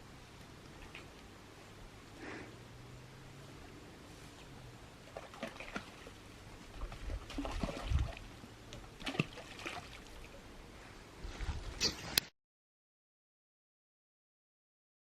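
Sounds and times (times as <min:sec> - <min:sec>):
water splashing and trickling: 0:00.2 - 0:01.4, 0:03.4 - 0:10.6.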